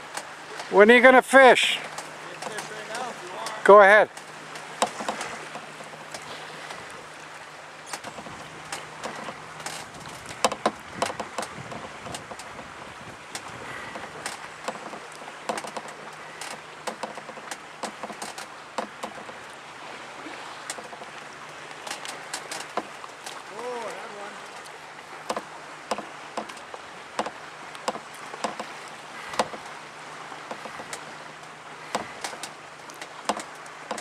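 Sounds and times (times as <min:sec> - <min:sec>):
water lapping around a boat: 0:00.0 - 0:34.0
sharp clicks and knocks: 0:01.8 - 0:06.8, 0:07.9 - 0:12.7, 0:13.3 - 0:19.4, 0:24.5 - 0:28.7, 0:29.3 - 0:29.7, 0:31.9 - 0:34.0.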